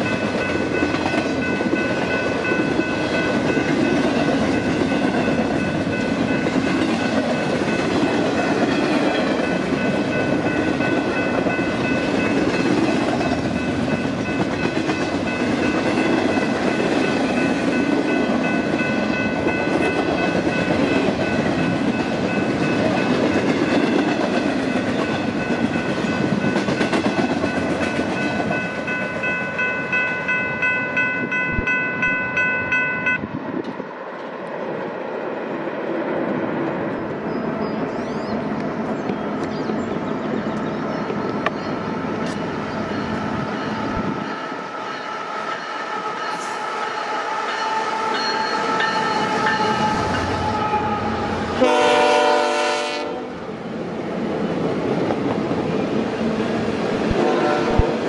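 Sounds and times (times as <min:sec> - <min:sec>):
distant train: 0:00.0 - 0:58.0
freight train rumbling: 0:00.0 - 0:58.0.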